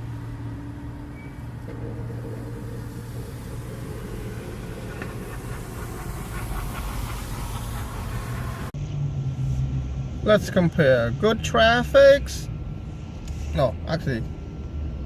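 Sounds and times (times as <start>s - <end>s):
car engine hum inside cabin: 0.0s - 10.3s
road noise hiss: 0.0s - 15.0s.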